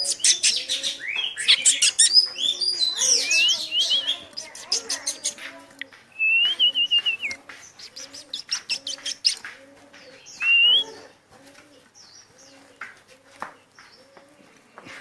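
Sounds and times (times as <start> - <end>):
songbirds whistling and chirping: 0.0 - 11.0
low cooing: 7.8 - 13.4.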